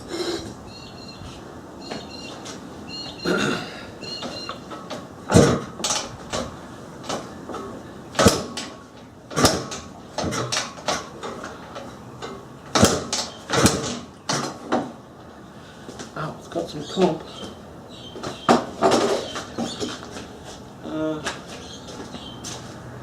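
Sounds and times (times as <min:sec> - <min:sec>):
motorcycle kick-starter clatter: 0:03.2 - 0:15.0, 0:18.2 - 0:20.3.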